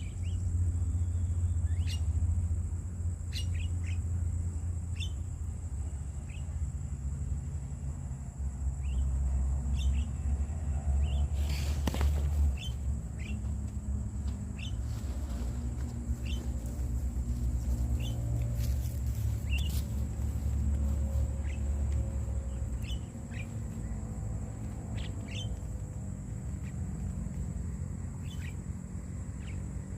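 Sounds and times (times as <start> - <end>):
bird chirping: 0.0 - 2.5, 3.2 - 6.6, 8.8 - 10.4, 11.0 - 13.5, 14.5 - 16.8, 17.6 - 18.6, 19.2 - 26.8, 28.2 - 28.7, 29.3 - 29.8.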